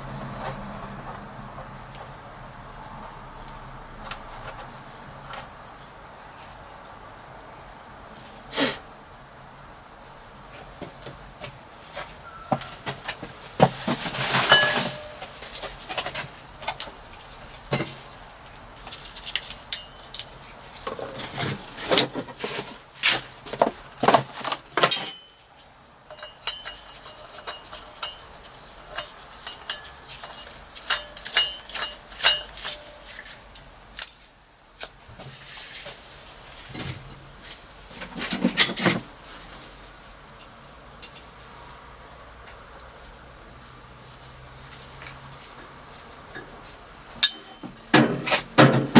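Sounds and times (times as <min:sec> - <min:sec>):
metal tools clinking on workbench: 0:14.1 - 0:15.4, 0:26.1 - 0:33.2, 0:47.2 - 0:48.4.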